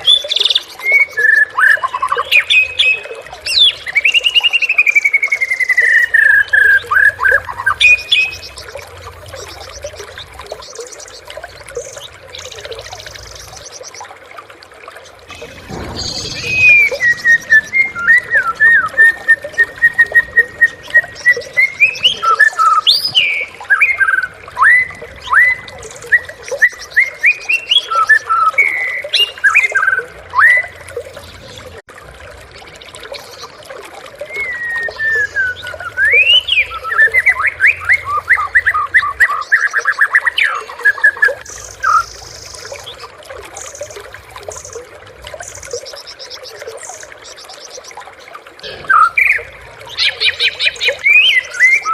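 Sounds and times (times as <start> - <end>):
bird singing varied song: 15.3 - 31.7, 34.3 - 51.9.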